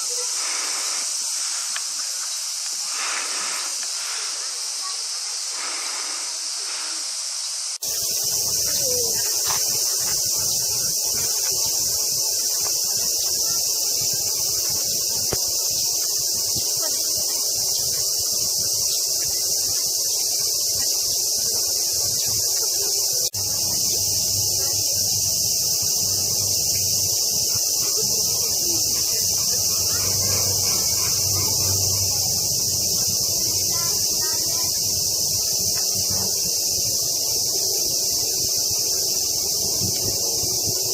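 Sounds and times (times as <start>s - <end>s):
cicadas buzzing: 0.0s - 40.9s.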